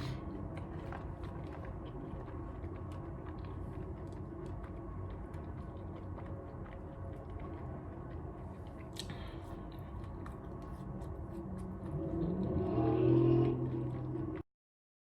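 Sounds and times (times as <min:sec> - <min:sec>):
low room hum: 0:00.0 - 0:14.4
chewing mouth clicks: 0:05.3 - 0:14.0.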